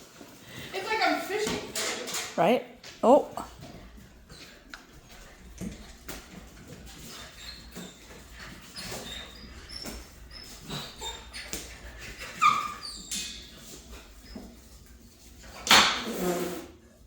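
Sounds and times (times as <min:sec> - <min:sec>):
puppies yipping and whining: 0:07.0 - 0:14.4
puppy yelp: 0:08.8 - 0:11.6, 0:12.2 - 0:13.4.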